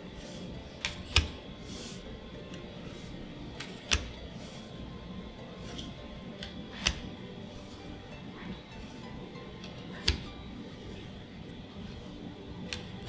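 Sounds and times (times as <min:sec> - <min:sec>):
cards sliding swishes: 0:00.0 - 0:13.0
cards snapping and tapping: 0:00.2 - 0:04.9, 0:05.5 - 0:07.2, 0:09.6 - 0:10.4, 0:11.8 - 0:13.0.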